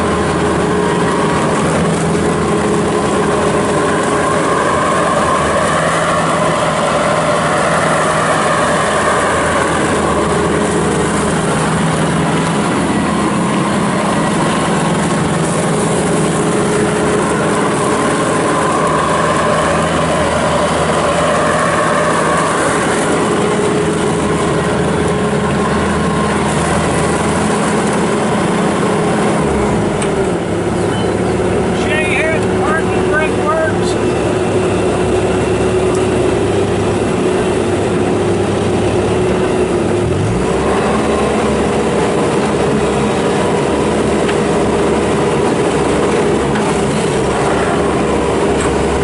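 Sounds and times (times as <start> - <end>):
high wavering whine: 0.0 - 29.4
diesel engine running: 0.0 - 49.0.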